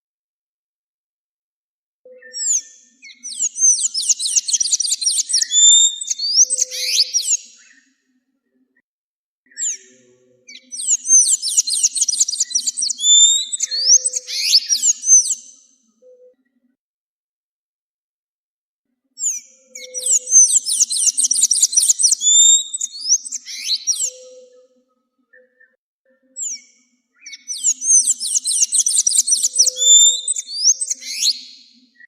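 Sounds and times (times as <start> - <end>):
bird warbling whistled song: 2.1 - 7.9, 10.5 - 16.3, 19.2 - 25.8, 26.4 - 31.8.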